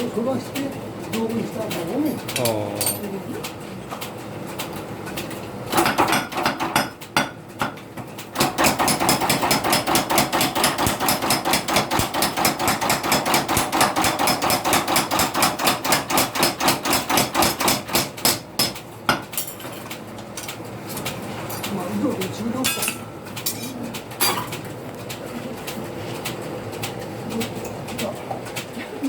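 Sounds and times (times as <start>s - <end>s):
hammer striking metal: 8.4s - 19.6s.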